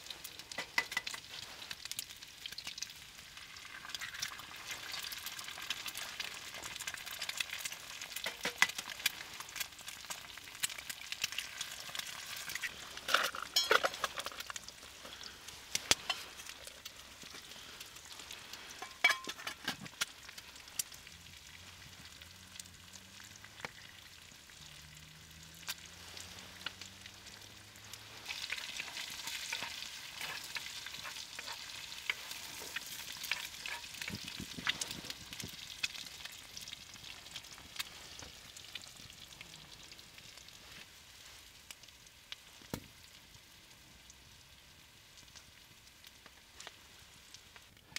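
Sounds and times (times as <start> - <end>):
food sizzling in a skillet: 0.0 - 47.7
clicks and scrapes of stirring: 0.2 - 1.7, 5.7 - 9.7, 10.6 - 20.9, 28.2 - 35.9.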